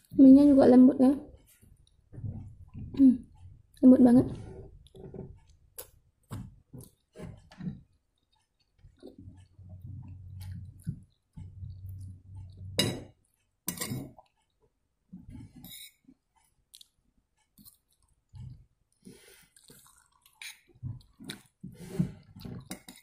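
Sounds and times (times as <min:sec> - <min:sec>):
person chewing noodles: 0:04.6 - 0:14.7, 0:15.4 - 0:23.0.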